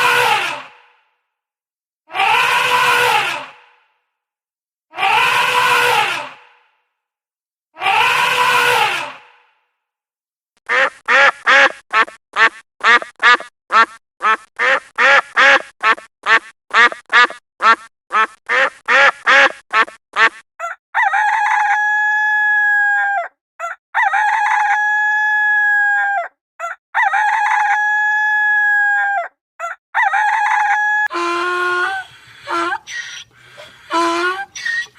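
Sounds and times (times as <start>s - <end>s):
duck quacking: 10.6s - 20.4s, 31.1s - 34.9s
rooster crowing: 30.0s - 34.9s.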